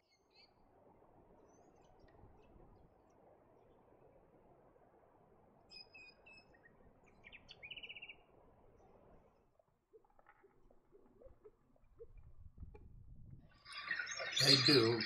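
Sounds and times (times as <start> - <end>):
faint bird chirps and trill: 0.0 - 0.7, 5.6 - 15.0
low outdoor background noise: 0.0 - 15.0.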